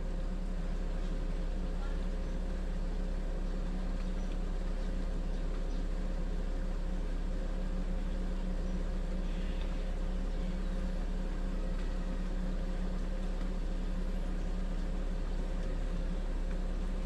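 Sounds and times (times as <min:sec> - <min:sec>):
fridge compressor humming: 0:00.0 - 0:17.0.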